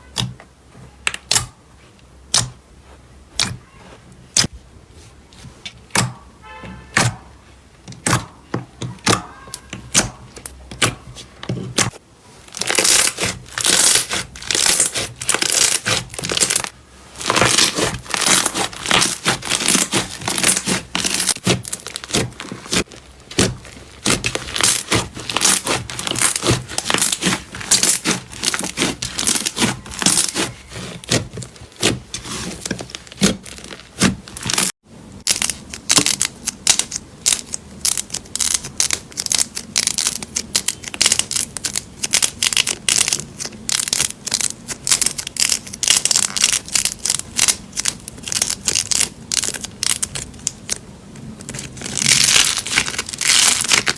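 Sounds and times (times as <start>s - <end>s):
slime squeezed by hand crackling: 12.6s - 50.7s, 51.5s - 53.9s.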